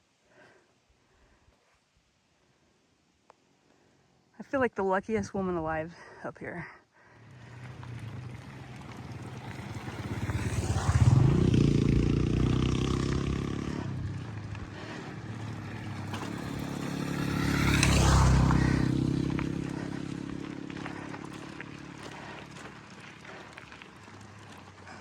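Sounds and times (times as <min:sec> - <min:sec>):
motor vehicles driving past: 0:07.0 - 0:25.0.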